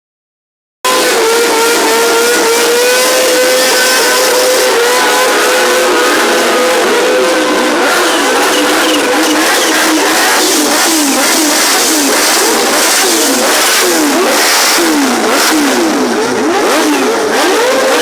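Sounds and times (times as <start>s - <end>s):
motorcycle engines revving: 0.9s - 18.0s.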